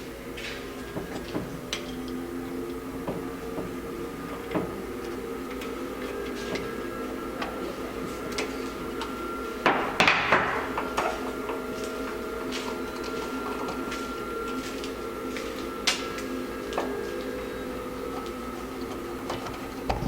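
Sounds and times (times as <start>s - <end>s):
steady background hum: 0.0s - 20.0s
rattling scrape: 18.1s - 20.0s.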